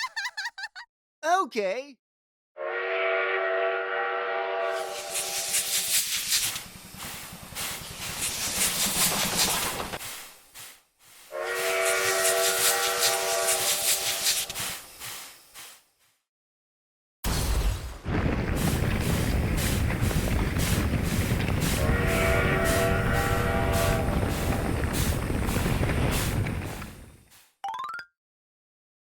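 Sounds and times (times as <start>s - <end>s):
train horn blast: 2.6s - 5.4s, 11.3s - 14.2s, 21.8s - 24.4s
train rattling past: 2.8s - 10.2s, 11.3s - 15.1s, 18.1s - 27.3s.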